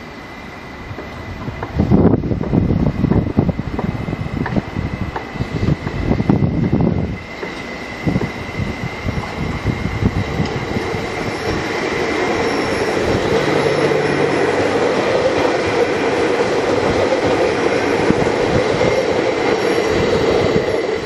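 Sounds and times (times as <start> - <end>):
train wheels rumbling on rails: 0.0 - 21.0
thin high whine: 5.4 - 21.0.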